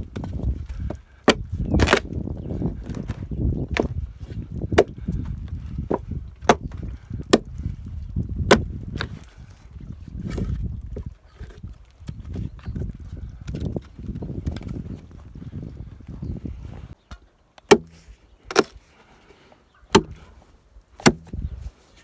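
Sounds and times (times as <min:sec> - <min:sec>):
tool chopping wooden log: 0:00.1 - 0:02.2, 0:02.8 - 0:04.0, 0:04.6 - 0:07.6, 0:08.5 - 0:09.3, 0:17.6 - 0:18.8, 0:19.9 - 0:20.3, 0:21.0 - 0:21.4
wood splintering crack: 0:00.1 - 0:10.6, 0:17.6 - 0:18.8, 0:19.9 - 0:20.3, 0:21.0 - 0:21.4.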